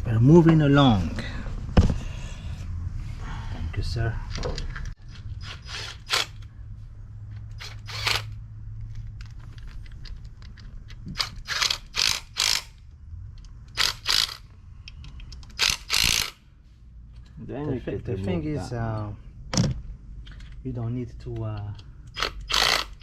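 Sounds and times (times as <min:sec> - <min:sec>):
steady low hum: 0:00.0 - 0:23.0
metal parts and tools scraping: 0:13.6 - 0:16.4.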